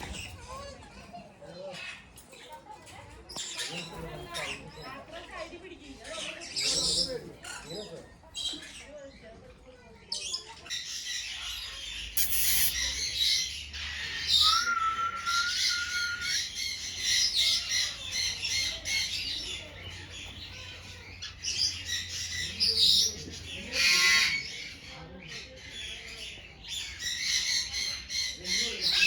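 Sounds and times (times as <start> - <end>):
parrots squawking and chattering: 10.2 - 29.0.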